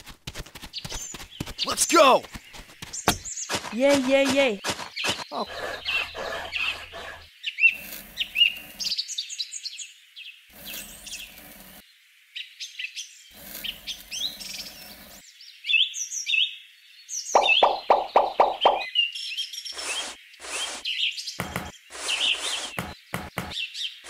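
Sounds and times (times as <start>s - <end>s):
birds chirping: 0.6s - 9.8s, 13.1s - 15.9s, 17.0s - 24.0s.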